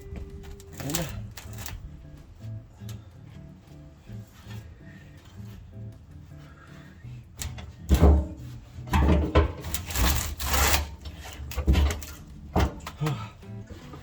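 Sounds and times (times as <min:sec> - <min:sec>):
faint music: 0:00.0 - 0:14.0
rough scraping of parts: 0:00.5 - 0:01.9, 0:07.4 - 0:13.0.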